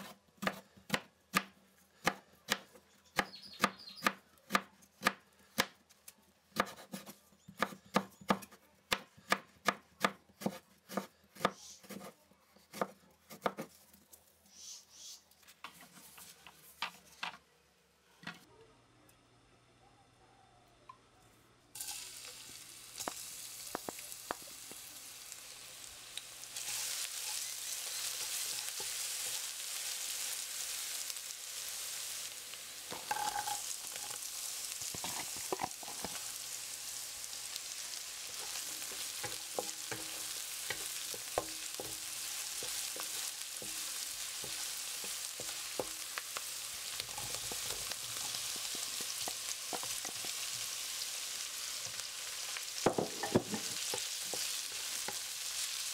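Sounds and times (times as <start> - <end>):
onion sizzling in oil: 21.8 - 55.9
stirring clicks and scrapes on pan: 32.9 - 36.4, 37.8 - 55.9.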